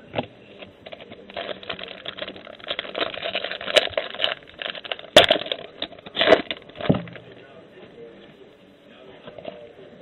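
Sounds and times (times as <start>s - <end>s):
wrapper crinkling and rustling: 0.8s - 7.2s.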